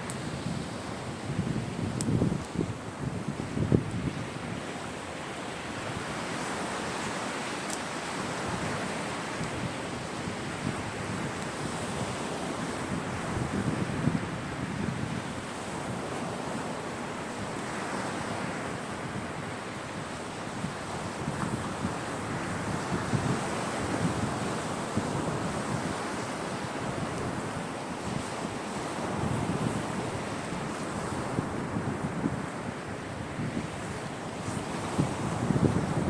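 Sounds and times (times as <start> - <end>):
sea waves washing onto beach: 0.0 - 36.0.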